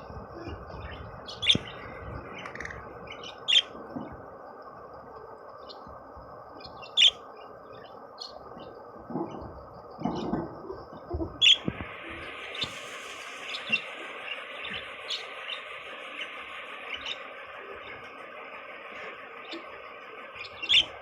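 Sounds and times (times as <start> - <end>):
steady low hiss: 0.0 - 21.0
budgerigars chirping: 0.7 - 3.8, 6.6 - 8.7, 11.4 - 17.3, 20.3 - 21.0.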